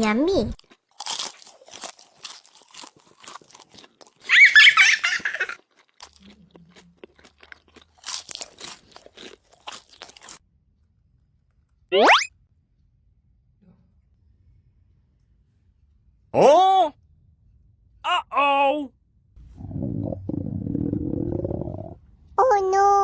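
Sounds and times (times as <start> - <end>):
crunchy food being chewed: 0.6 - 4.3, 5.4 - 10.4.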